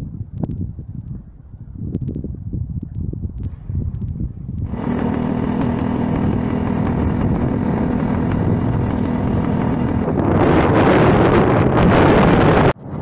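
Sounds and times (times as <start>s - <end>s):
motorcycle engine running: 4.0s - 13.0s.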